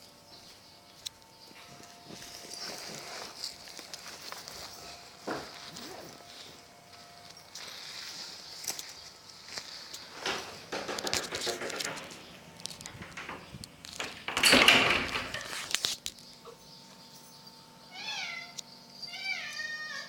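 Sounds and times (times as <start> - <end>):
rustling and scuffling: 0.5 - 17.5
cat meowing: 17.9 - 20.0.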